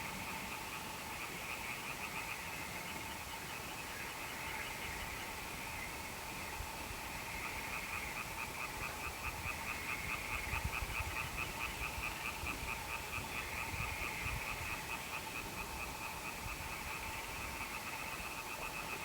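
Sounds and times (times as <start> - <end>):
frogs calling in pulses: 0.0 - 19.0.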